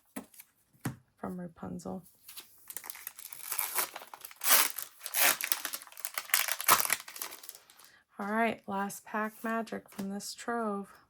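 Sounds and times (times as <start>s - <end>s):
foil wrapper crinkling and tearing: 2.7s - 7.9s.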